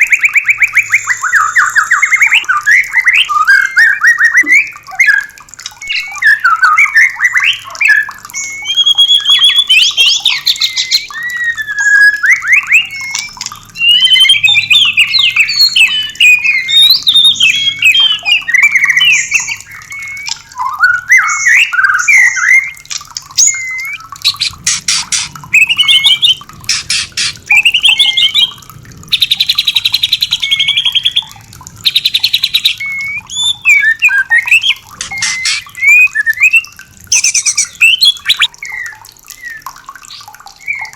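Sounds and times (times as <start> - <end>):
bird singing whistled phrases: 0.0 - 40.9
bird rattling calls: 22.0 - 28.5, 29.1 - 38.5.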